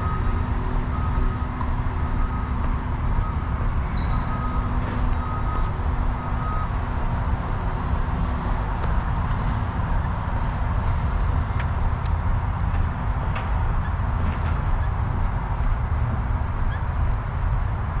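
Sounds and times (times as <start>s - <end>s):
low outdoor rumble: 0.0s - 18.0s
faint high beep: 4.0s - 4.6s.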